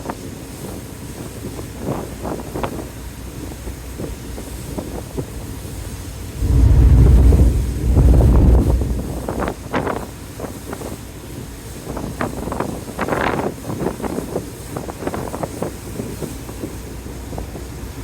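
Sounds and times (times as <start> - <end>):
wind gusting against microphone: 5.0 - 9.9.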